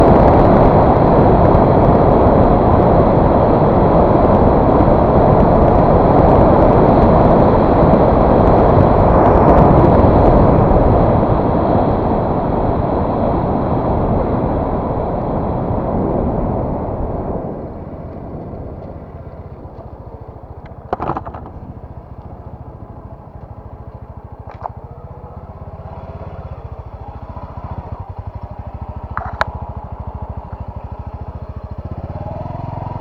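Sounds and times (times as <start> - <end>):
road rumble: 0.0 - 33.0
wind rush on microphone: 0.0 - 33.0.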